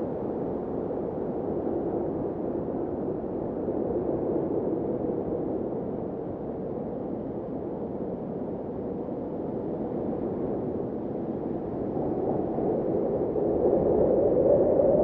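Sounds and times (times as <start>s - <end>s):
blizzard wind rushing: 10.2s - 15.0s.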